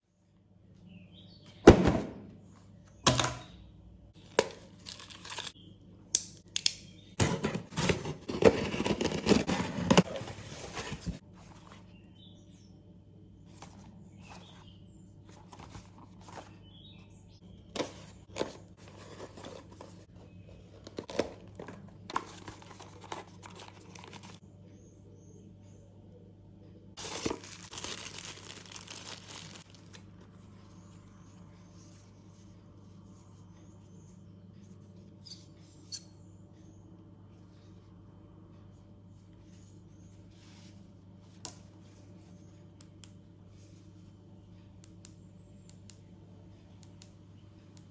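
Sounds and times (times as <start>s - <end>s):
faint low hum: 0.1s - 47.9s
packaging rustling: 7.2s - 11.2s, 20.8s - 24.4s, 27.0s - 30.3s
plastic crinkling and tearing: 27.0s - 30.2s.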